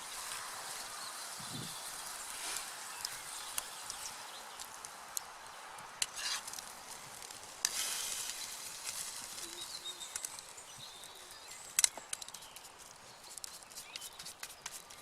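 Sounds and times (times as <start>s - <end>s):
sharp clicks and crackles: 11.7s - 15.0s.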